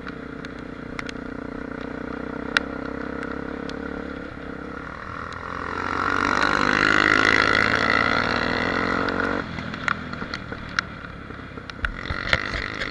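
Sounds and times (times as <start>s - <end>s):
motorcycle engine running: 0.0s - 12.9s
scattered clicks: 11.7s - 12.9s.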